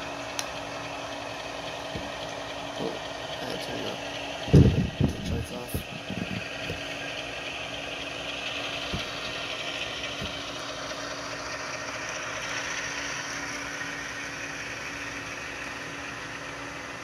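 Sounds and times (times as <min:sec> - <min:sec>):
diesel engine sound from speaker: 0:00.0 - 0:17.0.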